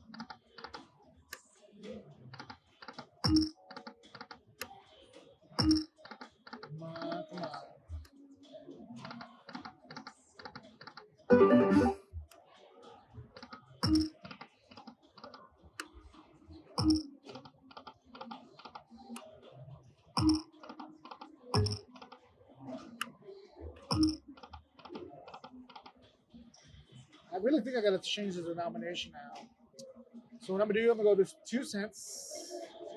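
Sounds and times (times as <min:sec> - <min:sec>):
electronic ticking of slot reels: 0:03.2 - 0:03.8, 0:05.6 - 0:06.2, 0:13.8 - 0:14.2, 0:16.8 - 0:17.1, 0:20.2 - 0:22.0, 0:23.9 - 0:24.6
slot machine music burst: 0:11.3 - 0:12.0.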